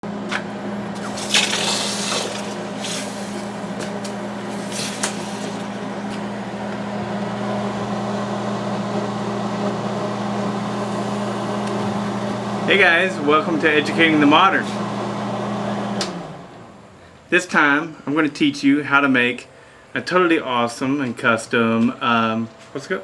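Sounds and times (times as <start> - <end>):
low machine hum: 0.0 - 14.8
short hissing rustles: 1.0 - 6.7.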